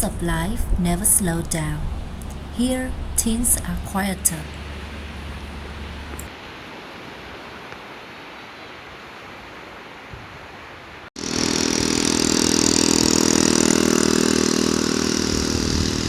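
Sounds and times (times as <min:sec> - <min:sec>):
steady quiet hiss: 0:00.0 - 0:11.1
motorbike engine running: 0:11.2 - 0:16.0.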